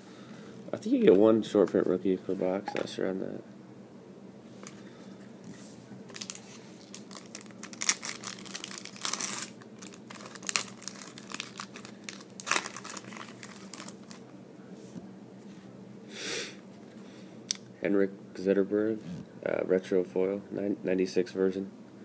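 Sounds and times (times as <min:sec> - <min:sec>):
cards rustling and snapping: 0:06.1 - 0:14.2
foil wrapper crinkling: 0:06.1 - 0:14.3.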